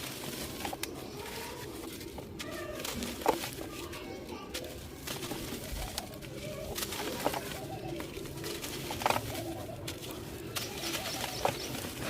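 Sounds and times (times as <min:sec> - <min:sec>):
dry material crunching by hand: 0:00.0 - 0:12.0
low cooing: 0:05.2 - 0:12.0.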